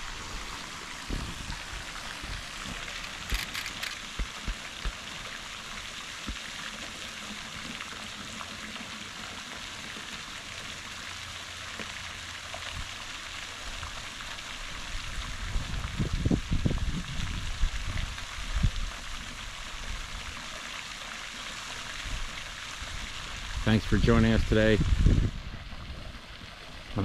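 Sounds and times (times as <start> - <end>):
wind buffeting microphone: 1.0 - 3.4, 15.2 - 18.9, 23.5 - 26.0.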